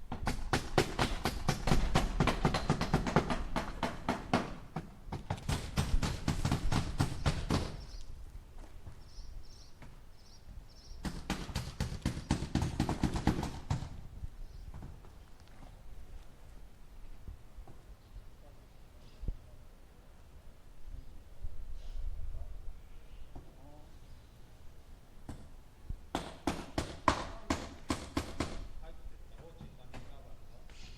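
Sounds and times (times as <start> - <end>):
hammer striking nails into wood: 0.1 - 7.8, 11.0 - 13.9, 26.1 - 28.7.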